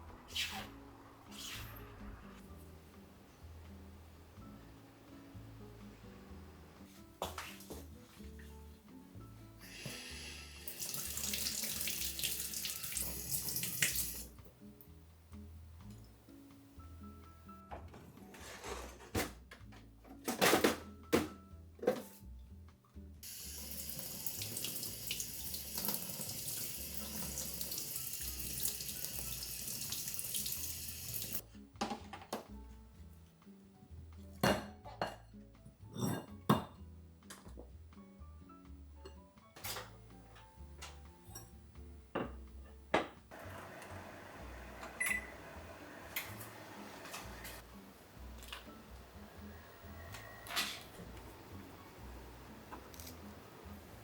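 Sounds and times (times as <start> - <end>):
soft background music: 0.0 - 54.0
tap water running into sink: 9.7 - 14.3, 23.2 - 31.4
microwave oven humming: 43.3 - 48.2.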